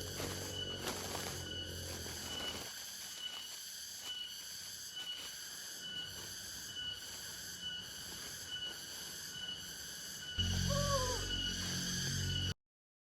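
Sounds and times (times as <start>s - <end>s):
insects buzzing: 0.0s - 12.6s
low hum: 10.4s - 12.6s.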